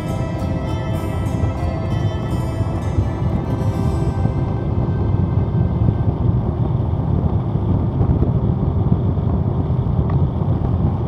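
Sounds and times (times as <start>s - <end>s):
motorcycle engine and road noise: 0.0s - 11.0s.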